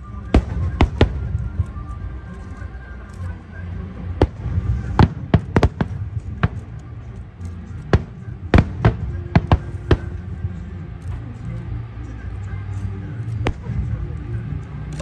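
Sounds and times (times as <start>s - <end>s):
fireworks bangs: 0.0s - 2.4s, 3.9s - 7.0s, 7.8s - 11.0s, 13.4s - 14.1s
low continuous rumble: 0.0s - 15.0s.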